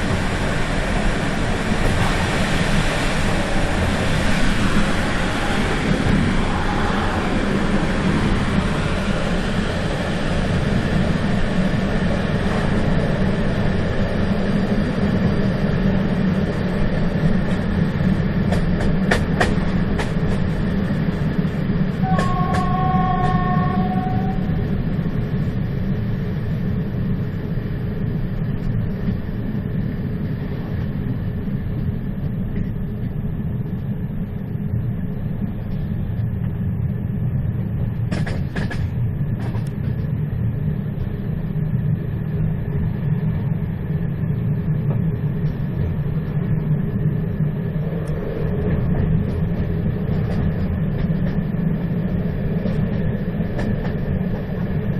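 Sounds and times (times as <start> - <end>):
train rumbling: 0.0 - 54.9.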